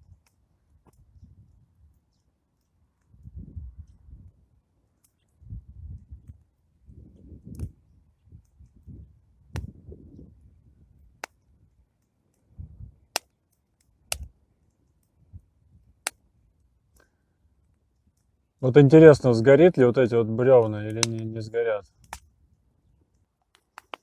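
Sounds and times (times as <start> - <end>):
campfire wood popping: 0.0 - 24.0
low rumbling fire: 0.0 - 24.0.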